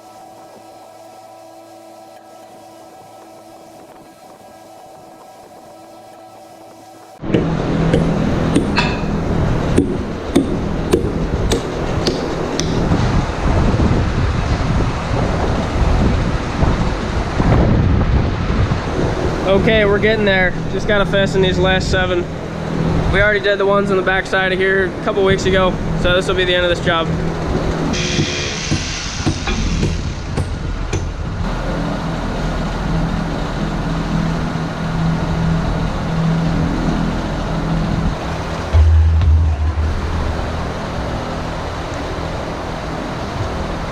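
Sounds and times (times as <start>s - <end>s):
machine engine rumbling: 0.0s - 43.9s
rubber mats knocking and thudding: 7.2s - 9.0s.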